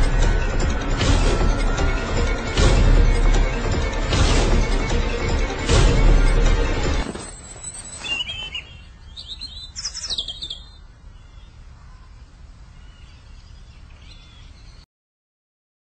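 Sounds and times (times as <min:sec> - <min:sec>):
small birds chirping: 0:07.2 - 0:14.9.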